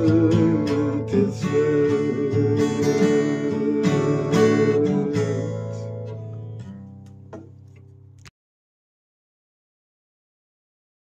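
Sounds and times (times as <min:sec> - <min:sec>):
acoustic guitar strumming chords: 0:00.0 - 0:07.6.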